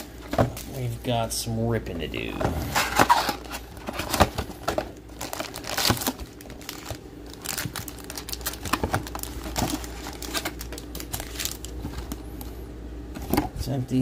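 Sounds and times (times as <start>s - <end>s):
plastic wrapping crinkling and tearing: 2.8s - 12.2s.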